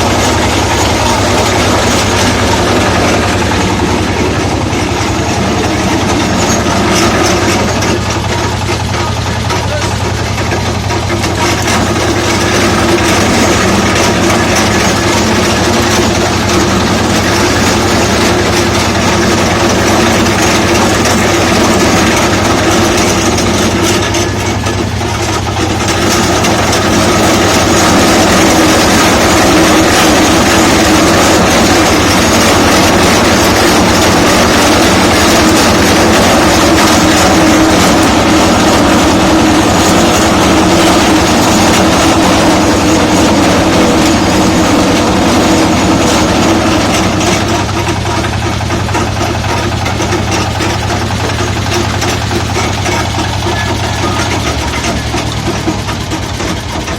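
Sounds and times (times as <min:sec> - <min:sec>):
crushing mill engine drone: 0:00.0 - 0:56.9.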